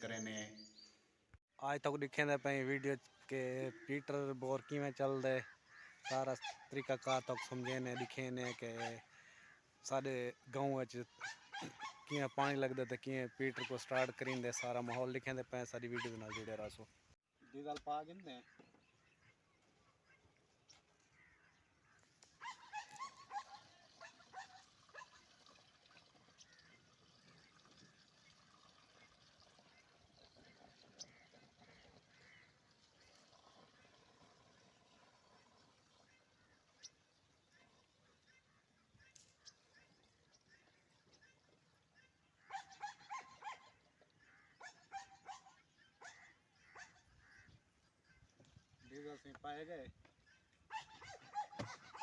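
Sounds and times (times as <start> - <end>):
faint outdoor background: 0.0 - 52.0
dog yapping: 11.2 - 12.1, 22.4 - 25.2, 42.5 - 43.7, 44.6 - 46.2, 50.7 - 52.0
dog yelping and whimpering: 50.7 - 52.0.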